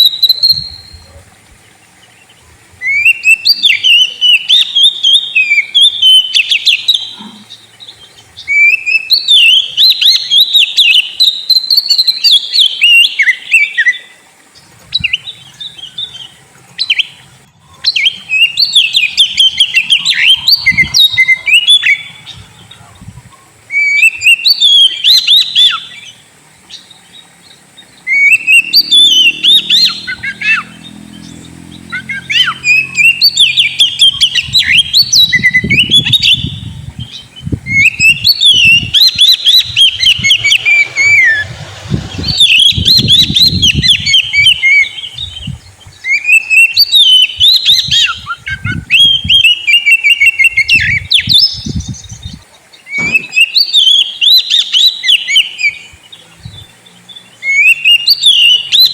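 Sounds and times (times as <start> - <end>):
bird song whistling and chattering: 0.0 - 1.2, 2.0 - 58.9
low rumble: 39.7 - 43.1.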